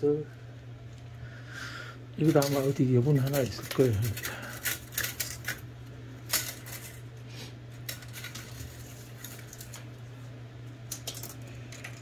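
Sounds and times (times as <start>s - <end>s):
steady low hum: 0.0s - 12.0s
small metal parts clinking: 2.2s - 5.6s, 6.2s - 7.0s, 7.8s - 9.8s, 10.9s - 12.0s.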